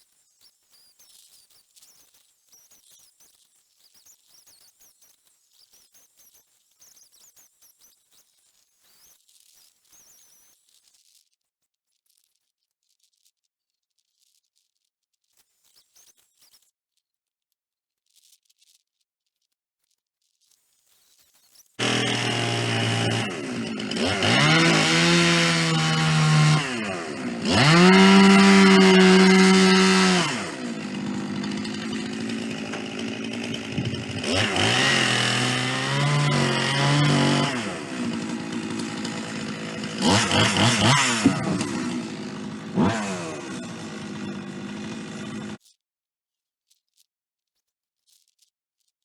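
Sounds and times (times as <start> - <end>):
chainsaw ripping log: 21.8 - 45.6.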